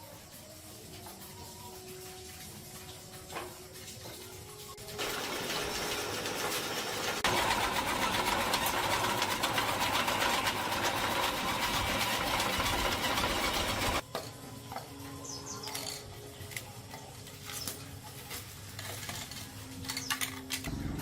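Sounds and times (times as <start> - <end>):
small motor with pulsing rattle: 0.0 - 14.9.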